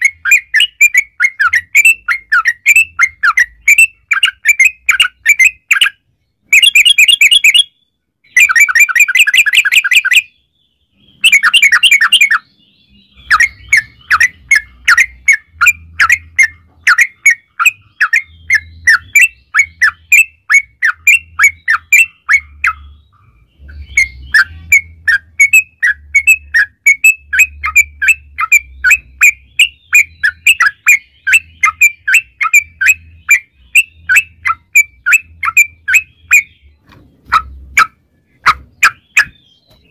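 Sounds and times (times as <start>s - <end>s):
bulbul calling: 0.0s - 39.9s.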